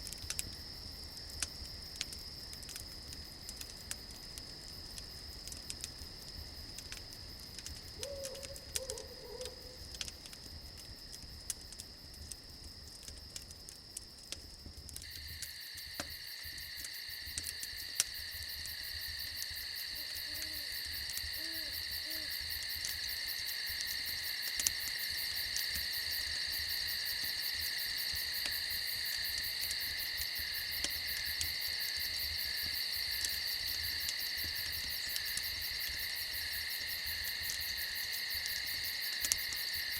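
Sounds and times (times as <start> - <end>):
campfire crackling: 0.0 - 39.9
crickets and insects chorus: 0.0 - 39.9
owl hooting softly: 8.0 - 9.8.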